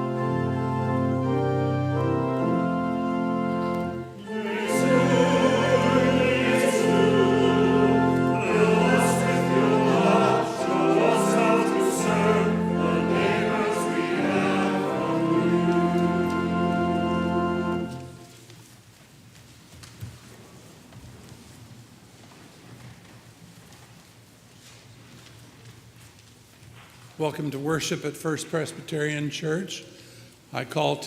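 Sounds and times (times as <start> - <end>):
organ playing chords: 0.0 - 18.4
choir singing: 3.8 - 18.3.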